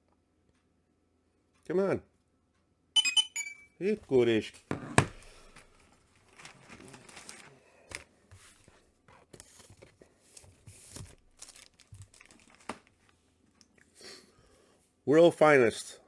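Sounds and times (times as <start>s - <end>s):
paper rustling and crinkling: 5.5s - 13.2s.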